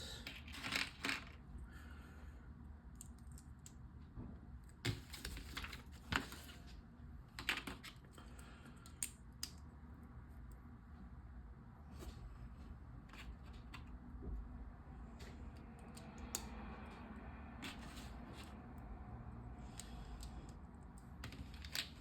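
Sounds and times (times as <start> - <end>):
plastic bricks clicking and rattling: 0.3 - 1.4.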